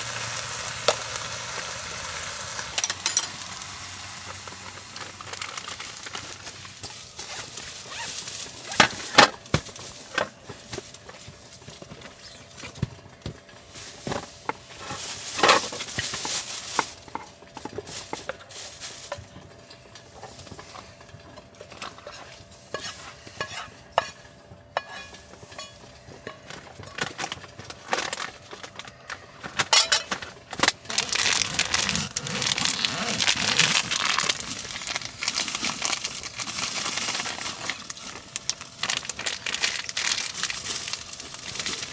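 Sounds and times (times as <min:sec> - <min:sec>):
food sizzling in a pan: 0:00.0 - 0:06.8
cookware and utensils clinking: 0:02.7 - 0:03.6, 0:21.3 - 0:27.3, 0:29.6 - 0:30.2.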